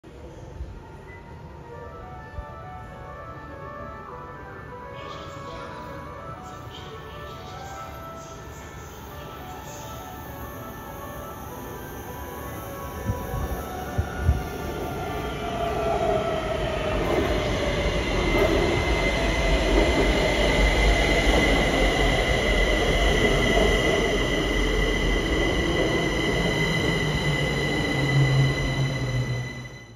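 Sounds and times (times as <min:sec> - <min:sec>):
high-pitched squeal: 0:10.8 - 0:29.9
train wheels rumbling on rail: 0:13.0 - 0:29.8.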